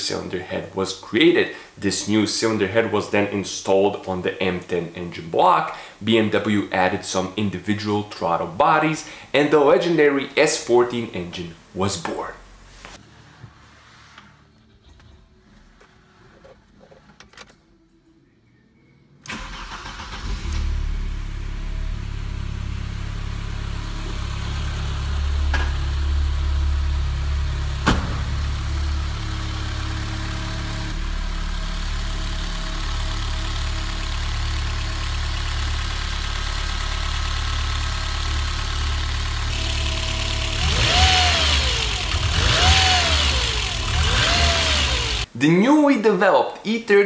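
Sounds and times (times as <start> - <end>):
car engine starting and idling: 19.2 - 45.3
engine revving: 19.3 - 45.3.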